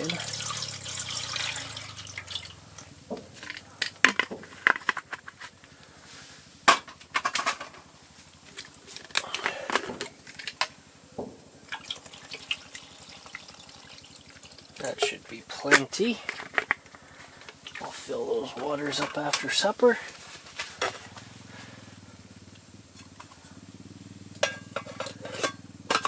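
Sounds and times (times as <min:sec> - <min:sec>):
splashing pour into pot: 0:00.0 - 0:02.8, 0:11.7 - 0:16.4
pot clinks and rattles: 0:11.4 - 0:18.0, 0:24.4 - 0:26.0.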